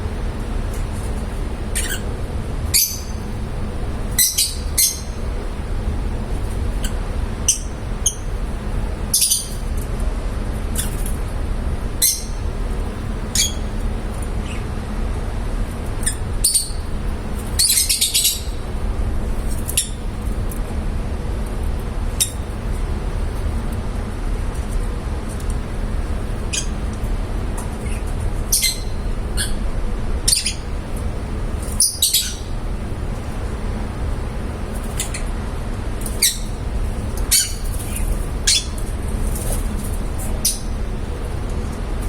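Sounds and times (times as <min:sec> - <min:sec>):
lovebirds chirping and squawking: 0:00.7 - 0:02.1, 0:02.7 - 0:05.5, 0:06.7 - 0:09.8, 0:10.8 - 0:11.1, 0:11.9 - 0:14.7, 0:16.0 - 0:18.7, 0:19.5 - 0:20.1, 0:22.2 - 0:22.4, 0:26.4 - 0:26.9, 0:27.8 - 0:29.6, 0:30.2 - 0:32.6, 0:34.8 - 0:35.3, 0:36.0 - 0:39.6, 0:40.4 - 0:40.8.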